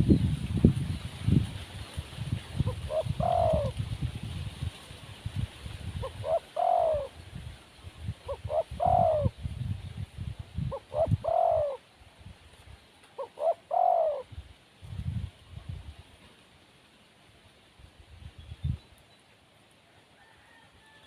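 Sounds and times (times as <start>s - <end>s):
dove cooing: 2.6s - 3.8s, 6.0s - 7.2s, 8.2s - 9.4s, 10.6s - 11.8s, 13.2s - 14.4s.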